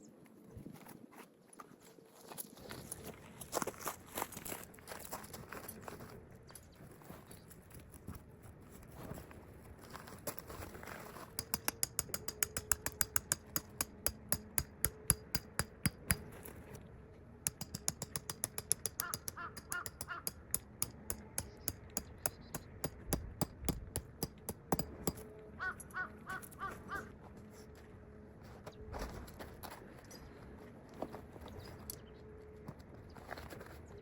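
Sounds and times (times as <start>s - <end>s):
sharp rapid clicks: 17.5s - 24.8s
crows cawing: 25.6s - 27.1s.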